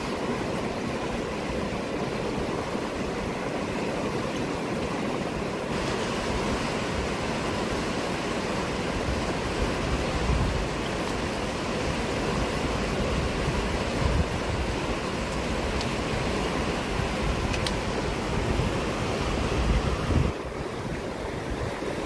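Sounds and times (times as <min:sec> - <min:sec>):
fast-flowing river rushing: 0:00.0 - 0:22.0.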